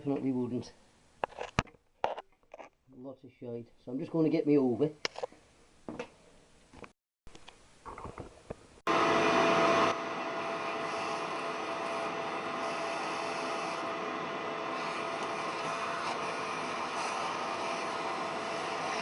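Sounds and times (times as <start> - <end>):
vacuum cleaner whining: 8.9 - 19.0.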